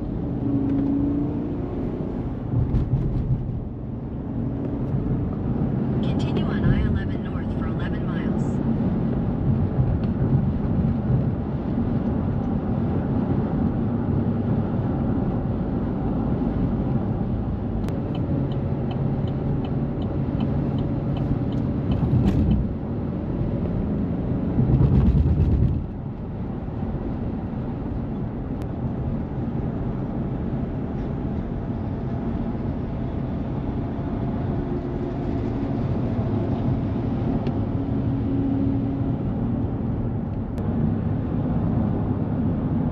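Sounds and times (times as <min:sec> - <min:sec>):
road and engine noise inside car: 0:00.0 - 0:42.9.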